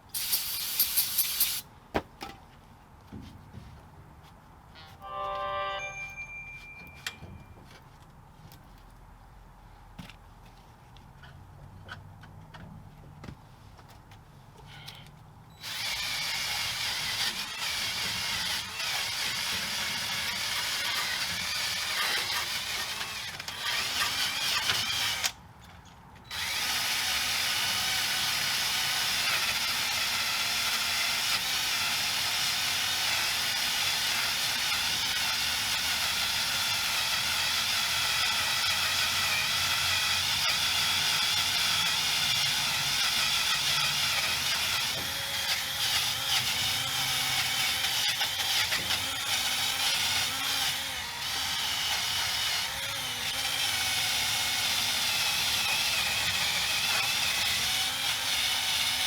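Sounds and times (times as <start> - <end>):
ratchet wrench clicking: 0.2 - 1.6.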